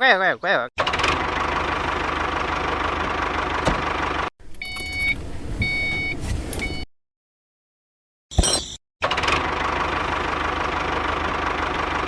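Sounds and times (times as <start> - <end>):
engine running: 0.8 - 5.4, 9.0 - 12.0.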